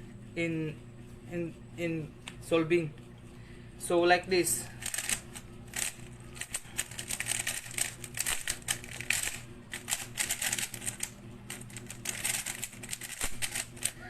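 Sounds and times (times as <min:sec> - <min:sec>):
puzzle cube clicking: 0:04.8 - 0:14.0.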